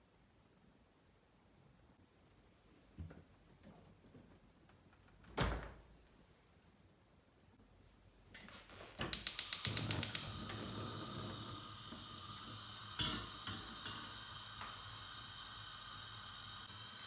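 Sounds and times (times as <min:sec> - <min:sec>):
steady hiss: 0:08.5 - 0:17.0
mechanism clicking rapidly: 0:09.1 - 0:10.4.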